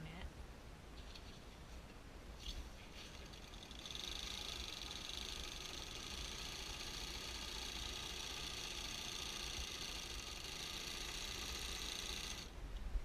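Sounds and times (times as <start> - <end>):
electric sewing machine stitching: 3.0 - 12.5.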